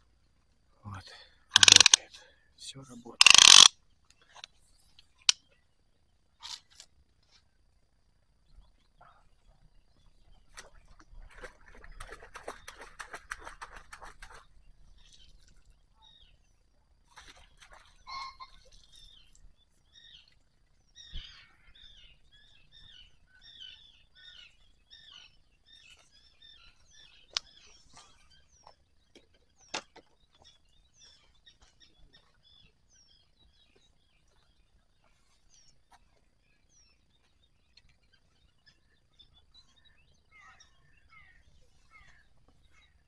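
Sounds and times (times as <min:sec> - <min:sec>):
songbirds chirping: 0:00.0 - 0:43.0
sharp clicks: 0:01.5 - 0:02.0, 0:03.2 - 0:03.7.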